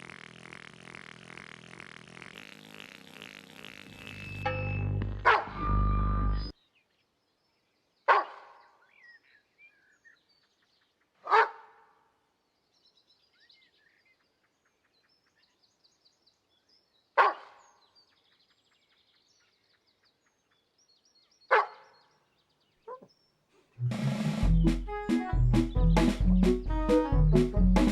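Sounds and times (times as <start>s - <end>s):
faint birdsong chirps: 3.9s - 11.3s, 12.3s - 23.5s
dog barking with echo: 8.1s - 8.5s, 11.3s - 11.7s, 17.2s - 17.6s.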